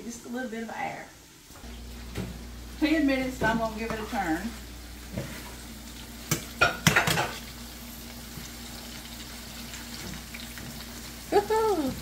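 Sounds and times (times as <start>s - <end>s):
food sizzling in grease: 0.0s - 12.0s
utensils knocking on skillet: 6.2s - 7.4s.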